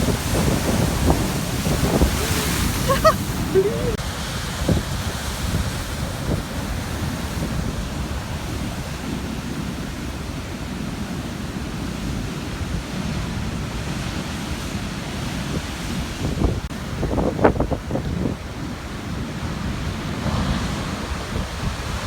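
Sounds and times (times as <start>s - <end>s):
surf breaking on rocks: 0.0s - 9.5s
wind buffeting microphone: 0.0s - 14.6s, 15.3s - 22.0s.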